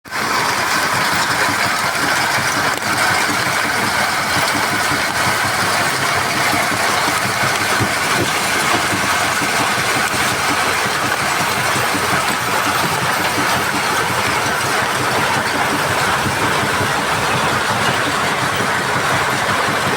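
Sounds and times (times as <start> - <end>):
heavy machinery running: 0.1 - 19.9.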